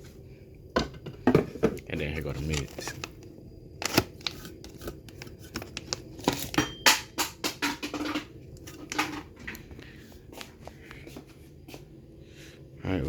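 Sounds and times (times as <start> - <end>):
hard objects clicking and knocking: 4.6 - 9.6.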